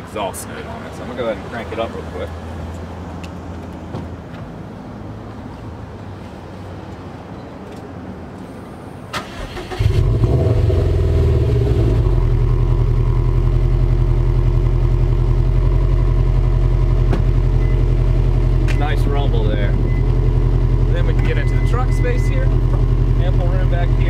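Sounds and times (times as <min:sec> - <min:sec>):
car engine starting and idling: 0:08.4 - 0:24.0.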